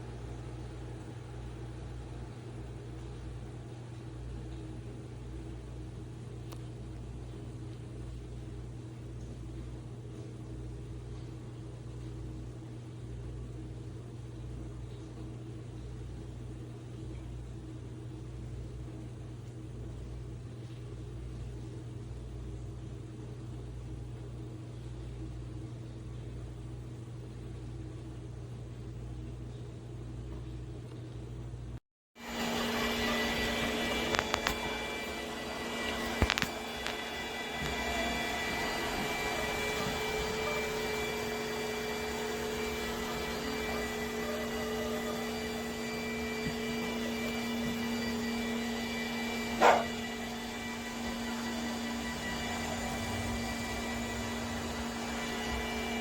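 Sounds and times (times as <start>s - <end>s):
robot vacuum running: 32.2s - 56.0s.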